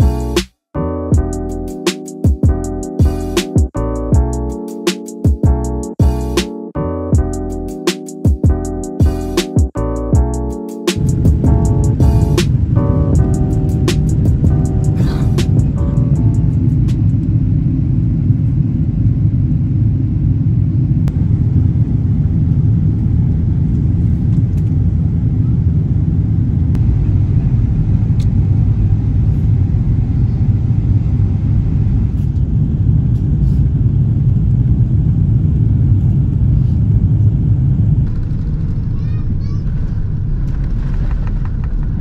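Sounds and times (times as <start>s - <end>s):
vehicle rumbling in motion: 11.0s - 18.5s, 20.9s - 42.0s.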